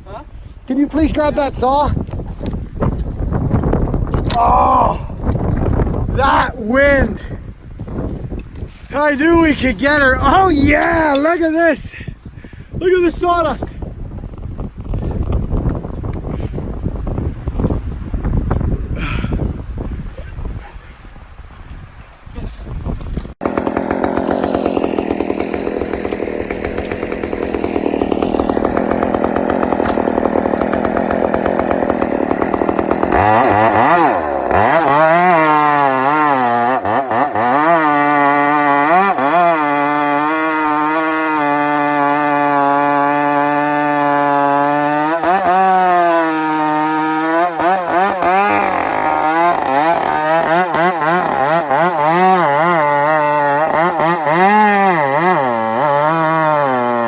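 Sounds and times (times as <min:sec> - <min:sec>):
two-stroke chainsaw revving: 0:06.1 - 0:07.4, 0:08.9 - 0:11.8, 0:23.4 - 0:57.0.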